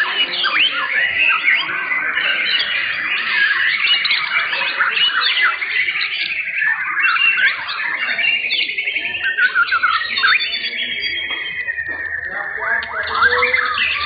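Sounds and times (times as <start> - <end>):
birds singing: 0.0 - 14.0.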